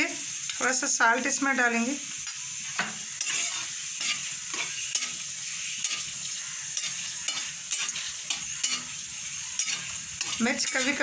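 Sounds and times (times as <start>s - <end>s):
chillies sizzling in hot oil: 0.0s - 11.0s
metal spatula scraping pan: 2.2s - 11.0s.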